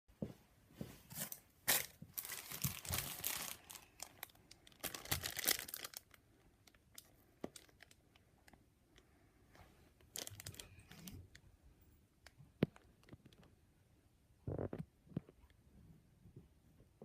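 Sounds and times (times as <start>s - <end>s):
packaging torn open and crinkled: 1.7s - 8.0s, 10.1s - 11.1s.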